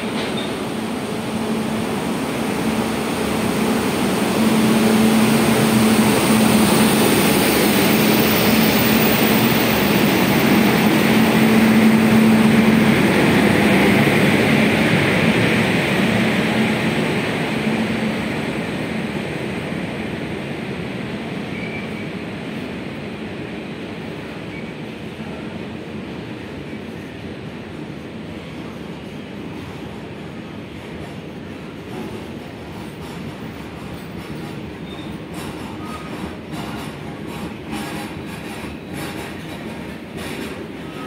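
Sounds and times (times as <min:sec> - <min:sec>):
locomotive hum: 0:00.0 - 0:19.0
wheels rumbling on rail: 0:00.0 - 0:22.7, 0:23.3 - 0:41.0.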